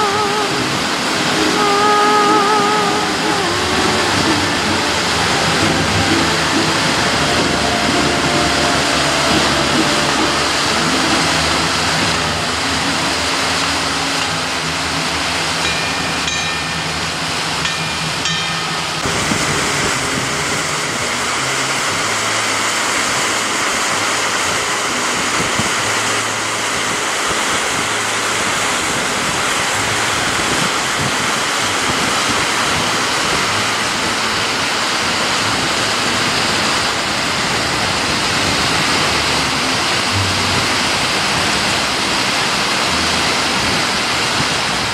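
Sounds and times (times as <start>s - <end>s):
high tones: 0.0s - 25.1s
low hum: 0.0s - 44.9s
waterfall roaring: 0.0s - 44.9s.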